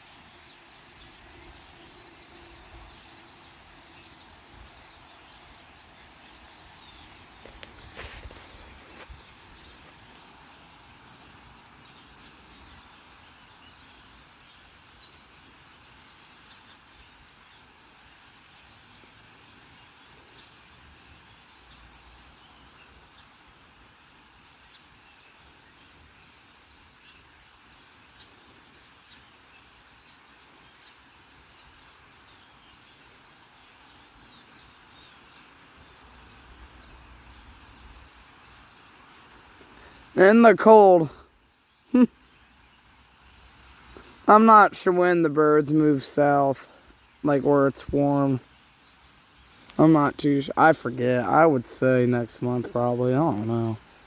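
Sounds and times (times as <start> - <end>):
flock of birds chattering: 0.0 - 41.2, 43.2 - 54.0.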